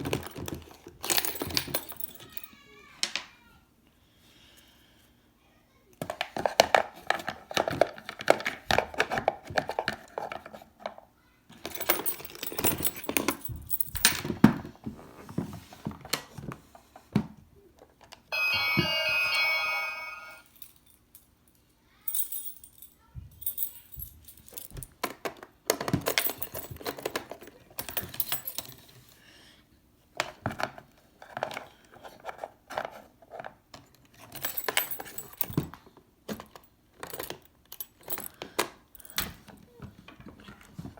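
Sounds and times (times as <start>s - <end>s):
toy keys and door parts rattling: 0.0s - 2.6s, 11.6s - 14.4s, 22.0s - 29.0s, 34.2s - 35.8s, 36.4s - 39.6s
electronic doorbell tone: 18.3s - 20.5s.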